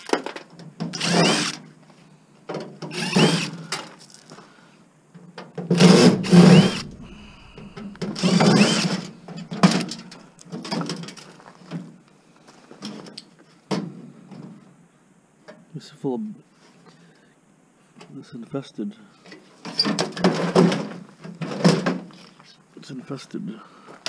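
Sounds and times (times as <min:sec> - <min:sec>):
power drill backing out screws: 0:00.9 - 0:01.6, 0:02.9 - 0:03.9, 0:05.7 - 0:10.4.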